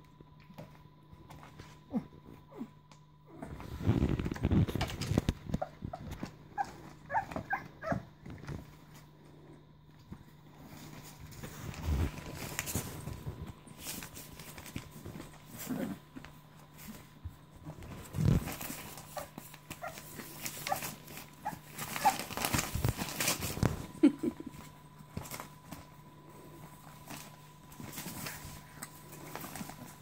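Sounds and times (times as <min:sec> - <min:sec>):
puppies squeaking and whimpering: 0:05.6 - 0:08.0
puppies moving about: 0:10.0 - 0:23.9, 0:26.6 - 0:30.0.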